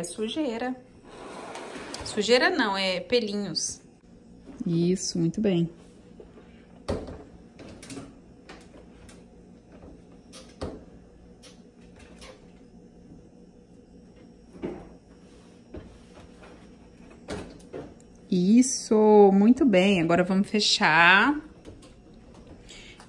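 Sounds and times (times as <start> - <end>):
clothes dryer knocks and clatters: 6.8 - 9.0.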